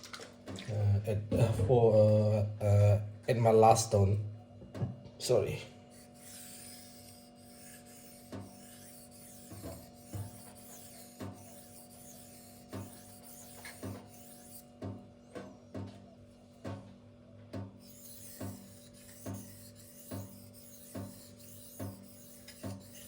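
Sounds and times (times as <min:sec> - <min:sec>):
knife scraping on sharpening stone: 0:06.0 - 0:14.6, 0:17.8 - 0:23.0.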